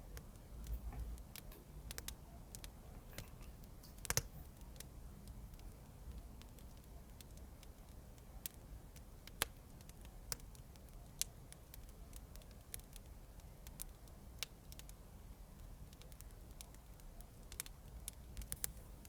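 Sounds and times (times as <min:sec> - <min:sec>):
fireplace crackling: 0:00.0 - 0:19.0.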